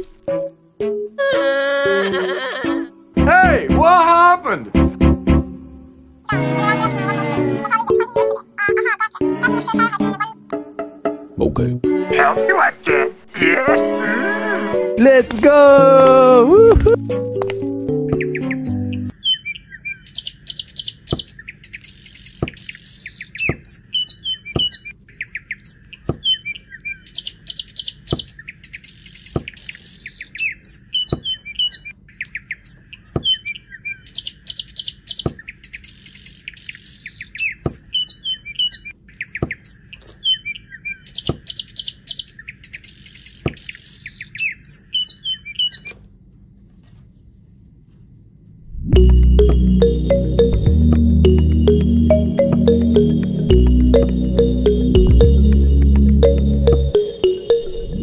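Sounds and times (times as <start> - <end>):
birds chirping: 17.8 - 46.0, 49.0 - 58.0.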